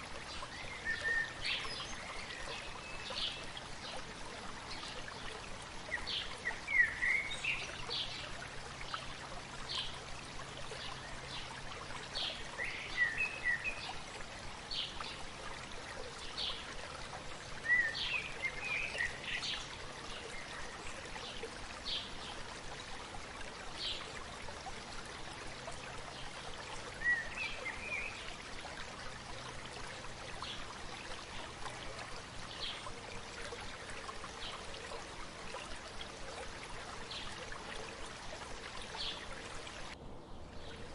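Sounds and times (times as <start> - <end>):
stream murmuring: 0.0 - 40.9
small birds chirping: 0.3 - 9.1, 14.7 - 22.5, 30.3 - 40.9.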